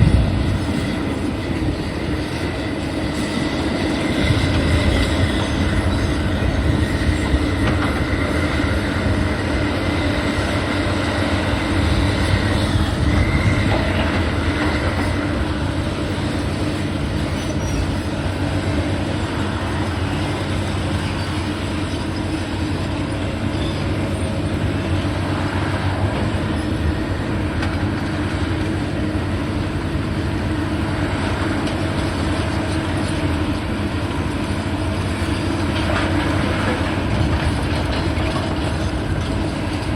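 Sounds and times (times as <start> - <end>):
high metallic squeal: 0.0 - 18.7, 19.5 - 22.8
heavy mechanical rumble: 0.0 - 39.9.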